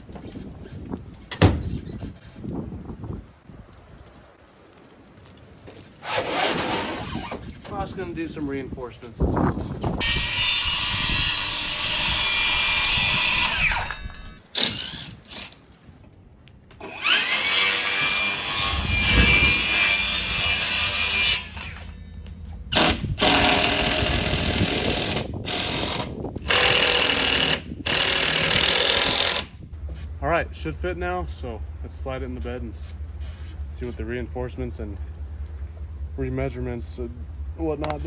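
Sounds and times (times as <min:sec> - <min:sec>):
power tool running on wood: 0:10.0 - 0:14.9.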